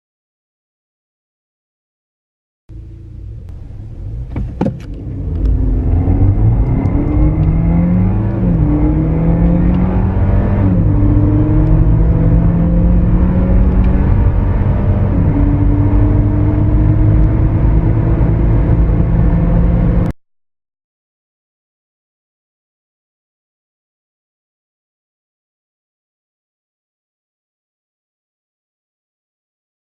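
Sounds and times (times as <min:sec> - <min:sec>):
car engine accelerating: 0:02.7 - 0:20.2.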